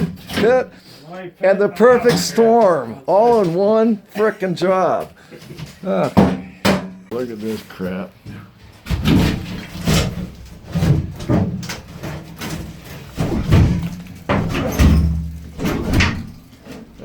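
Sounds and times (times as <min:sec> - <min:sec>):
heavy demolition thuds and bangs: 0:08.8 - 0:17.0.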